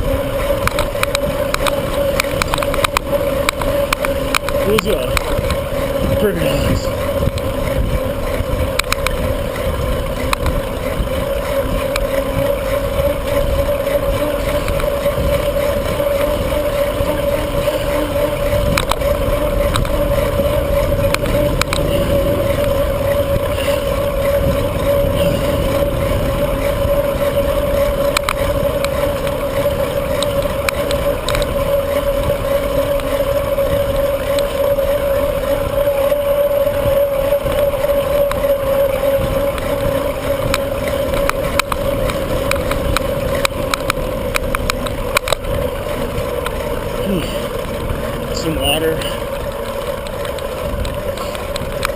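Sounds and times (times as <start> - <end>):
road and tyre noise: 0.0 - 51.9
steady hum: 0.0 - 51.9
small clicks: 0.4 - 5.6, 6.5 - 9.4, 10.2 - 22.8, 26.6 - 31.9, 36.0 - 48.1
wind rushing over microphone: 4.3 - 32.5.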